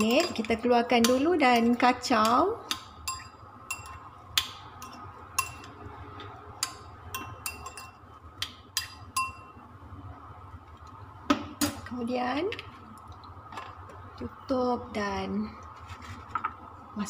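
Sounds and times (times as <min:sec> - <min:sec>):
utensil clinking against dish: 0:00.0 - 0:05.8, 0:06.6 - 0:09.6.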